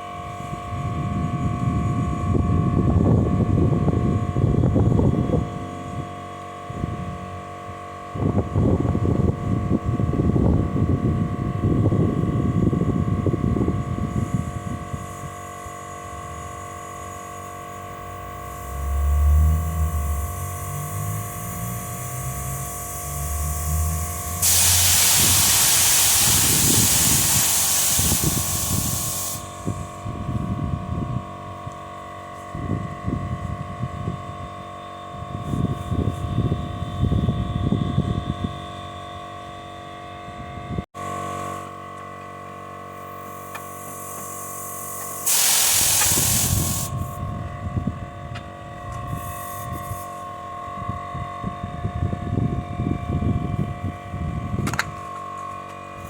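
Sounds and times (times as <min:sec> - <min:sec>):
electrical hum: 0:00.0 - 0:31.8
pressurised spray hissing: 0:20.3 - 0:29.8, 0:43.8 - 0:47.2.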